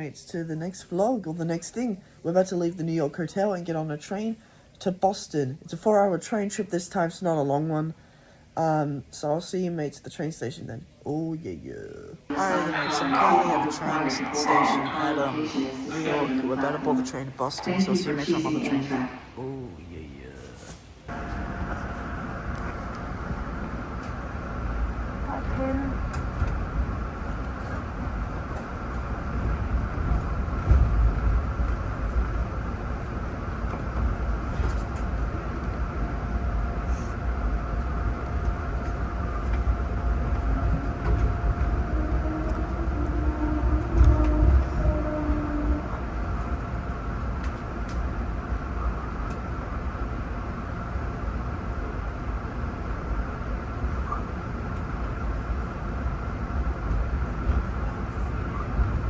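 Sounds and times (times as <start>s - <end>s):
faint constant whine: 0.0s - 59.0s
train rumbling: 12.2s - 59.0s.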